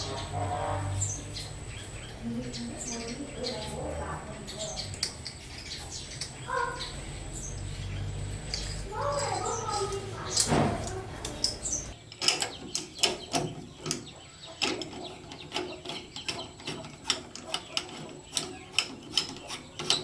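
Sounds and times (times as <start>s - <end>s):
hand tools clicking on metal: 4.7s - 6.5s, 8.1s - 20.0s.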